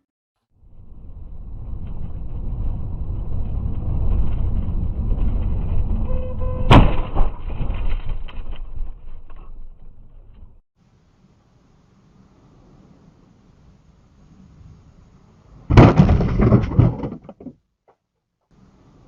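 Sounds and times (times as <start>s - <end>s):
car road and engine rumble: 0.6s - 6.9s
loud collision impact: 6.6s - 7.7s, 15.7s - 17.0s.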